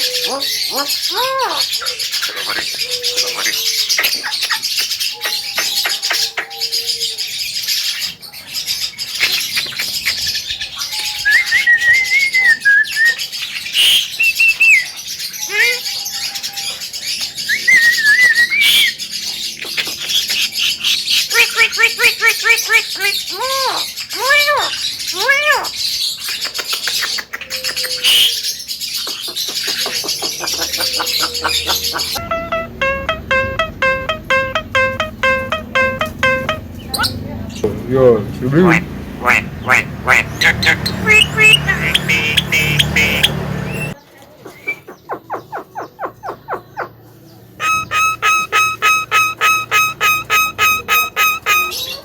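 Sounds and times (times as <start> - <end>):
myna chattering and whistling: 29.0 - 37.6, 38.7 - 46.9, 47.6 - 52.0.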